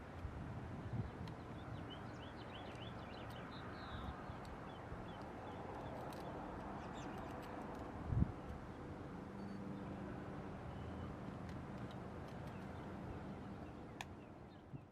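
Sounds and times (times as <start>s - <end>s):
small birds chirping: 0.9s - 7.8s.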